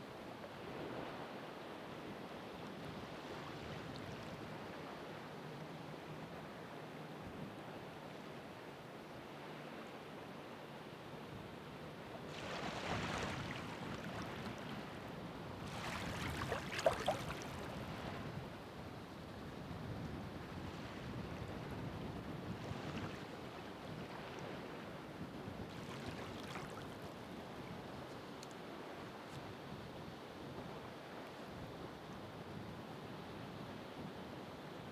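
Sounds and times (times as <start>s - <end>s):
ocean waves washing in: 12.2s - 18.4s
wave splash: 12.3s - 18.3s, 25.7s - 27.2s.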